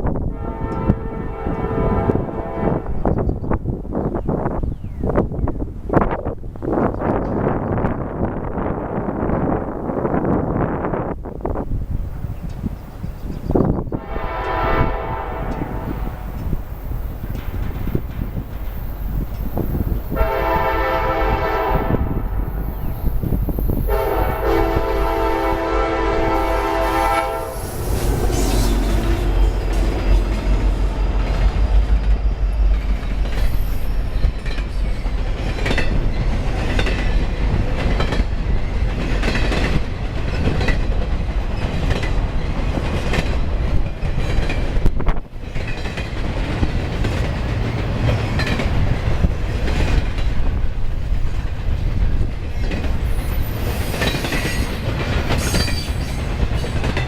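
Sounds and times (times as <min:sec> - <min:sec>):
train horn chord: 0:00.2 - 0:03.1, 0:14.0 - 0:16.5, 0:20.1 - 0:22.5, 0:23.9 - 0:31.9
freight cars rolling roar: 0:09.2 - 0:57.0
locomotive low rumble: 0:09.3 - 0:41.6
wheels clacking on rail joints: 0:11.3 - 0:21.7, 0:22.4 - 0:57.0.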